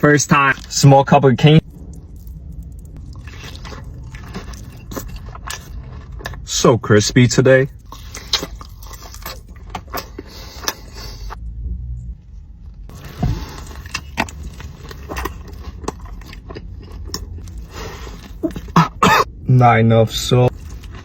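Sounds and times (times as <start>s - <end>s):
chewing crispy fried chicken: 1.9s - 6.6s, 7.7s - 11.3s, 12.9s - 19.0s, 20.5s - 21.0s.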